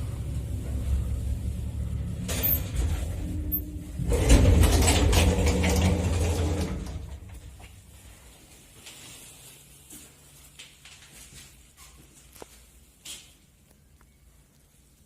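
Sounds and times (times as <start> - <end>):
machinery low hum: 0.0 - 8.4
loud mechanical clatter: 1.7 - 7.4.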